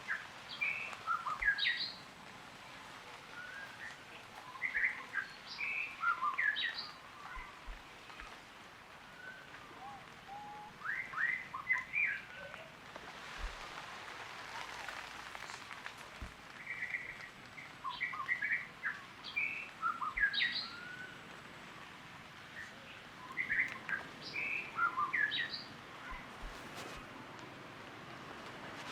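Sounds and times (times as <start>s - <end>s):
faint steady hiss: 0.0s - 28.9s
birds chirping: 16.6s - 21.3s, 22.0s - 27.1s.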